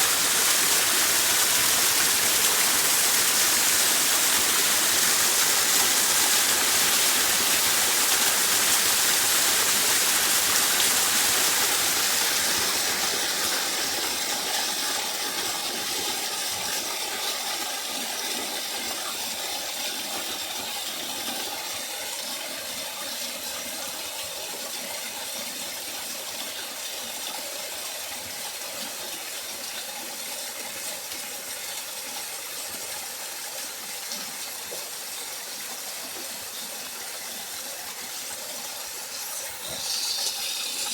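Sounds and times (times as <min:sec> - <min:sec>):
running water hiss: 0:00.0 - 0:17.3, 0:32.5 - 0:40.9.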